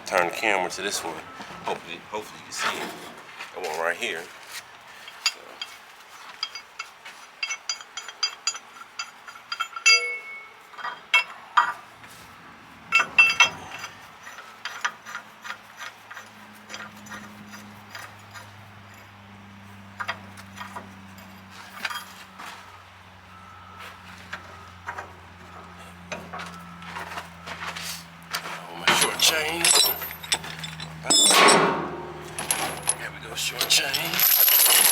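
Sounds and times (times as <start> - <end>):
metal chain clinking and rattling: 5.0 - 11.8, 12.9 - 15.2, 28.4 - 34.9.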